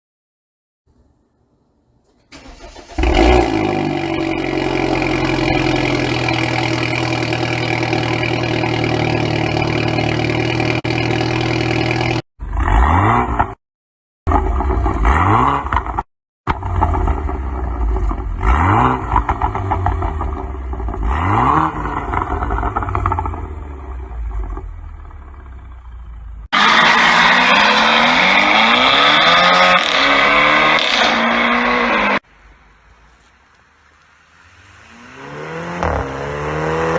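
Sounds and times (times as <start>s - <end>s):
car engine cranking: 2.0s - 12.2s
car engine idling: 2.1s - 12.2s
engine revving: 2.3s - 13.5s, 18.0s - 23.6s, 26.6s - 32.2s, 34.9s - 36.9s.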